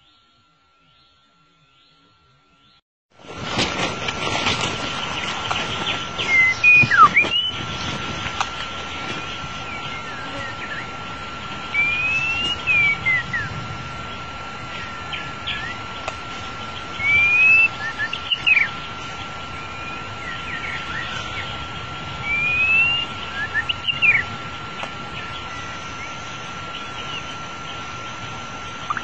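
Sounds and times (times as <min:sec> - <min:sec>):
shama bird song: 0:00.0 - 0:02.8, 0:04.7 - 0:29.0
thin steady high tone: 0:00.0 - 0:02.8, 0:08.8 - 0:29.0.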